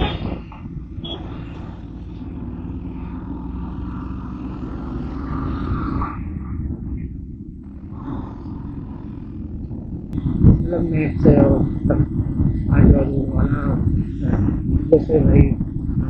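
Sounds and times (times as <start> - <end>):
motorbike engine and road noise: 0.0 - 16.0.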